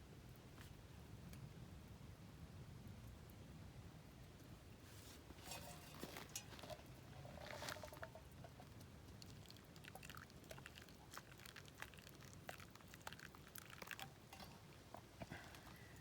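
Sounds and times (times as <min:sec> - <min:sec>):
coffee beans crackling while roasting: 0:05.0 - 0:16.0.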